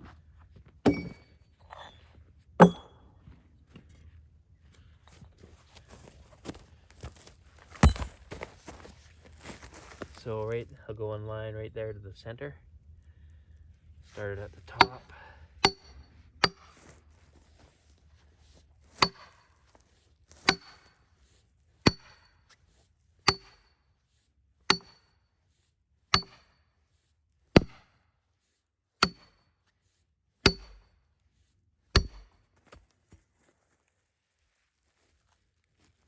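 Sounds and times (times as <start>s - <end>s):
hammer striking steel wedge: 0.9s - 1.2s, 2.6s - 3.0s, 7.8s - 8.1s, 14.7s - 15.0s, 15.6s - 16.7s, 19.0s - 19.4s, 20.4s - 21.0s, 21.9s - 22.3s, 23.3s - 23.8s, 24.7s - 25.1s, 26.2s - 26.5s, 29.0s - 29.4s, 30.4s - 30.9s, 32.0s - 32.3s.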